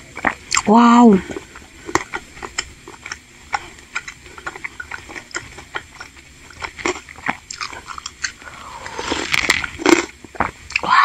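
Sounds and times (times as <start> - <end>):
wet chewing clicks and smacks: 0.1 - 0.7, 1.3 - 8.4.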